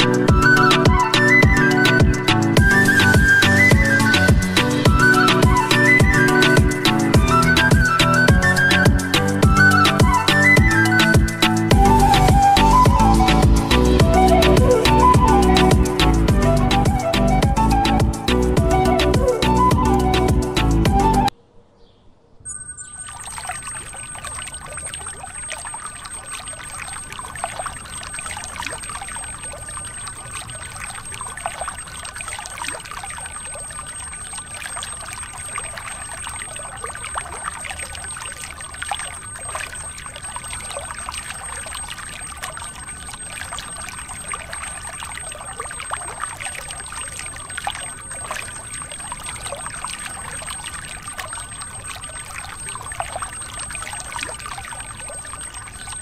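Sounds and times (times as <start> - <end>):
water pouring and splashing: 0.0 - 21.1, 22.8 - 56.0
pump motor whine: 0.0 - 21.3.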